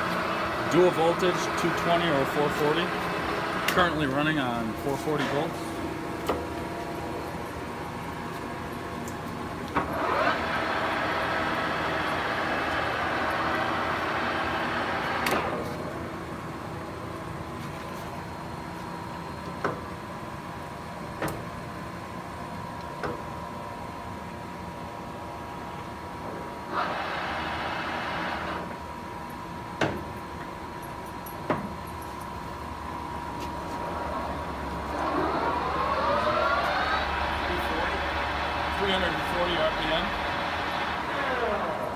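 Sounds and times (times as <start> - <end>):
lathe spindle running: 0.0 - 16.3, 26.6 - 28.9, 32.9 - 41.9.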